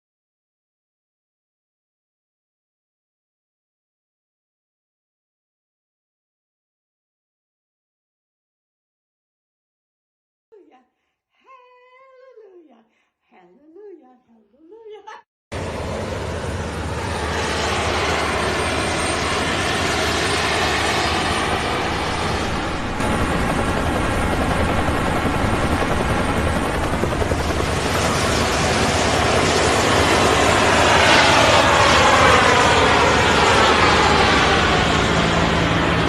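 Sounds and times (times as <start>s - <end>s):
aircraft noise: 15.5s - 36.0s.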